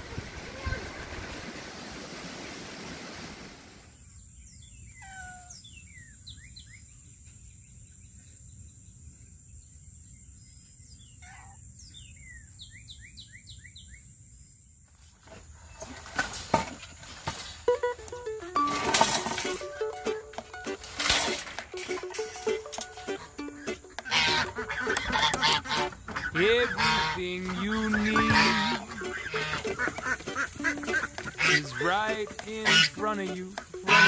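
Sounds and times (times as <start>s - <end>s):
wind noise on microphone: 0.0s - 1.7s
bird chirping: 4.0s - 14.6s, 22.0s - 34.0s
rustling: 14.9s - 23.4s.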